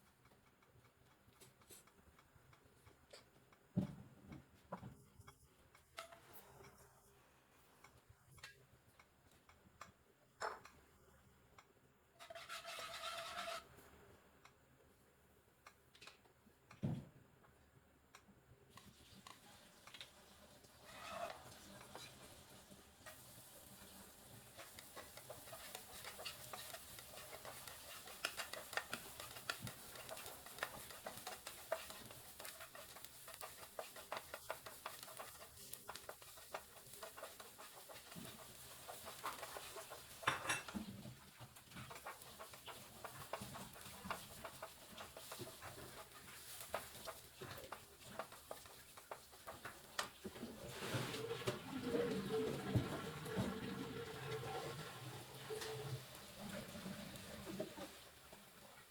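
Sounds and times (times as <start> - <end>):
utensil clicking against cookware: 23.0 - 40.8.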